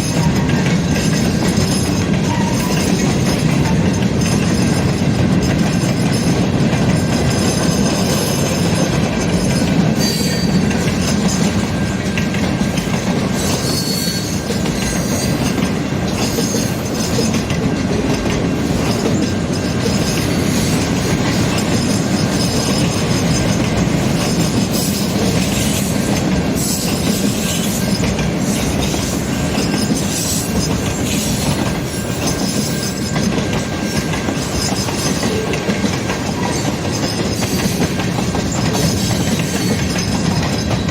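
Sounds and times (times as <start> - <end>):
train wheels rolling on rails: 0.0 - 40.9
high wheel squeals: 7.4 - 12.2, 13.3 - 15.6.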